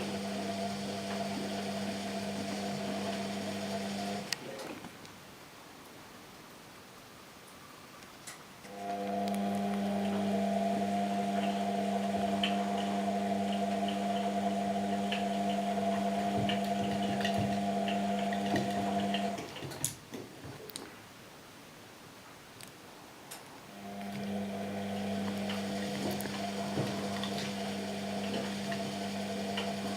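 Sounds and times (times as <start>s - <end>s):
washing machine motor hum: 0.0s - 4.4s, 8.7s - 19.5s, 23.8s - 29.9s.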